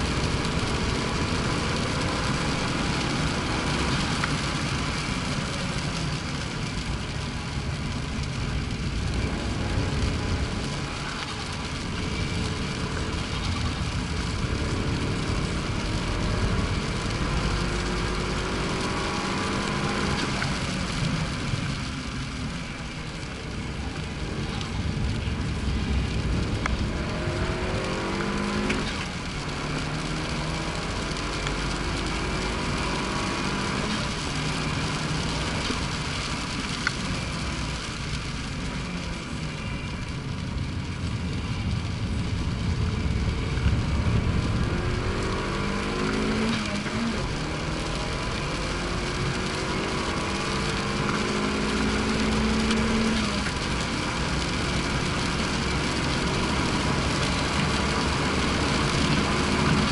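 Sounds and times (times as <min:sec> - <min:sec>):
car engine revving and shifting: 0:00.0 - 0:38.5, 0:42.2 - 0:59.9
road and wind noise: 0:00.0 - 0:59.9.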